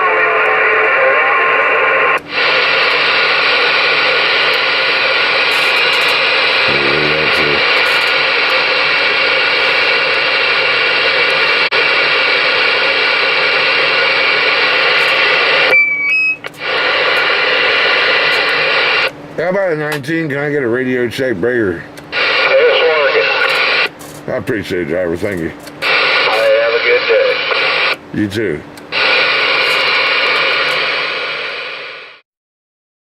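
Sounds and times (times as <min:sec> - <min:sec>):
radio band static: 0:00.0 - 0:15.8, 0:16.5 - 0:19.1, 0:22.1 - 0:28.1, 0:28.9 - 0:32.2
short beeps: 0:15.7 - 0:16.5.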